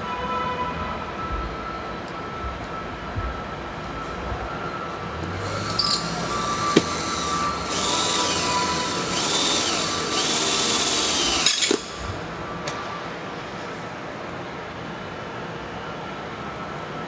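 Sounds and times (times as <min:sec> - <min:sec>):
power drill driving screw: 0:05.4 - 0:12.0
drill clicks: 0:05.5 - 0:12.0.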